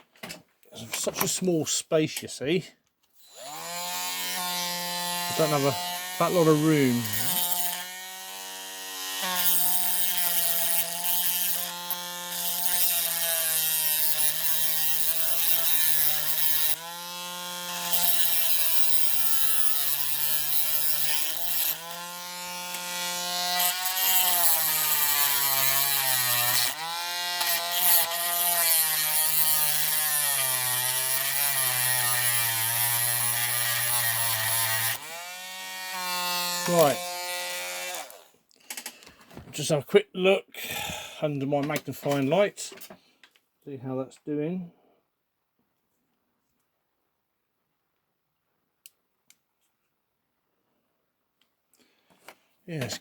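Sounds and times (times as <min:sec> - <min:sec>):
electric rotary tool whining: 0:03.2 - 0:38.3.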